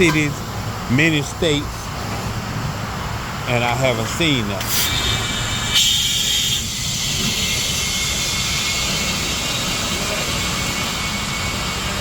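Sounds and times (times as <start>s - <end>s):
compressed air hissing into tire: 4.6s - 11.2s.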